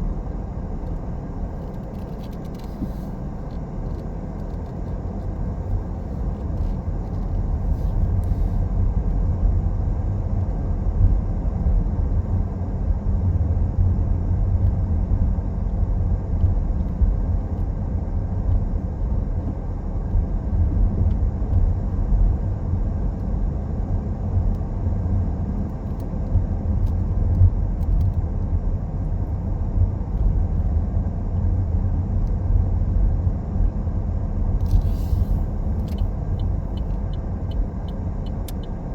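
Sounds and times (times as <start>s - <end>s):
car tyre and engine rumble: 0.0s - 38.9s.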